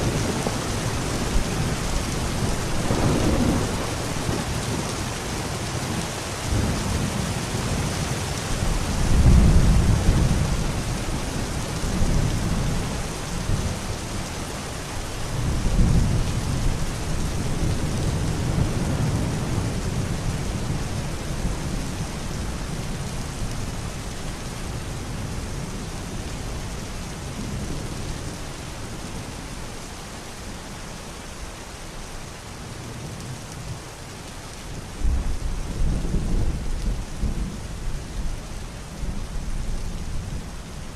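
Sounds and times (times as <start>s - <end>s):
rolling thunder: 0.0s - 4.9s
steady rain: 0.0s - 40.9s.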